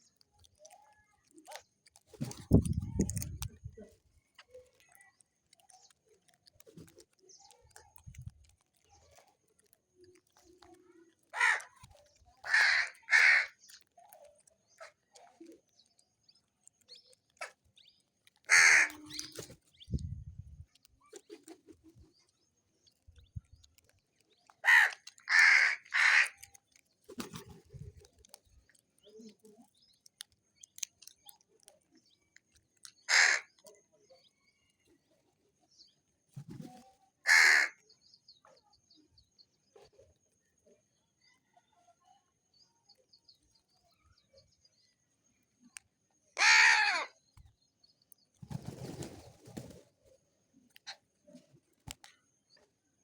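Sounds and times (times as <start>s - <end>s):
crows cawing: 11.3s - 11.8s, 12.4s - 13.6s, 18.5s - 19.1s, 24.6s - 26.4s, 33.1s - 33.5s, 37.3s - 37.8s, 46.4s - 47.1s.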